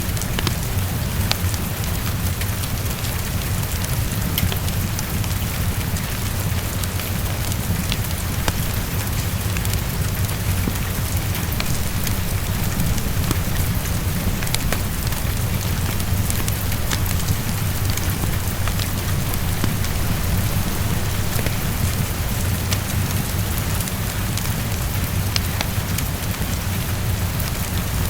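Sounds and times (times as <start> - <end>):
fireplace crackling: 0.0 - 26.8
heavy rain: 0.0 - 28.0
low rumble: 8.3 - 23.8.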